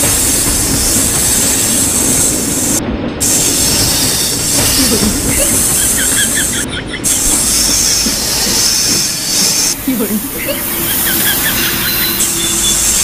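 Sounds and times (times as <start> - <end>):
train rolling on rails: 0.0 - 13.0
metallic wheel squeal: 3.4 - 13.0.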